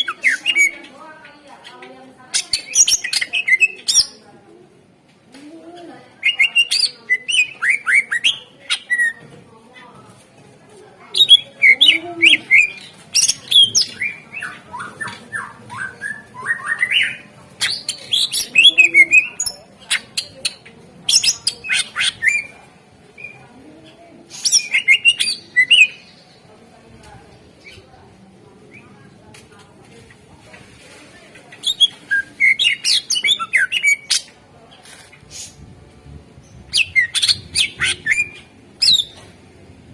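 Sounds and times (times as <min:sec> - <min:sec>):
bird singing rapid chirps and whistles: 0:11.2 - 0:20.0, 0:31.6 - 0:34.3, 0:36.7 - 0:39.2.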